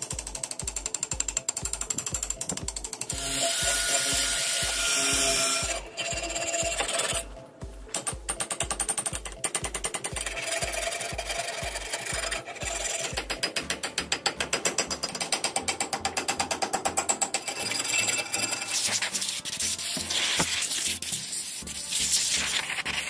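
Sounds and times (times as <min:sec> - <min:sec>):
hand tool scraping metal: 0:02.4 - 0:07.3, 0:10.0 - 0:23.0.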